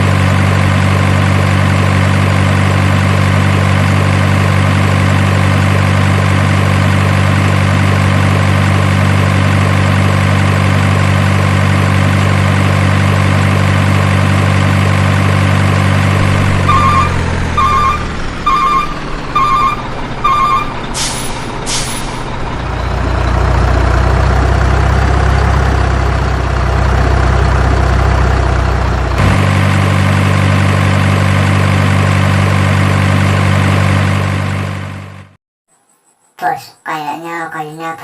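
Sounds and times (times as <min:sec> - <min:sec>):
truck engine idling: 0:00.0 - 0:35.4
reversing alarm beeping: 0:16.6 - 0:21.2
air brakes hissing: 0:20.9 - 0:22.3.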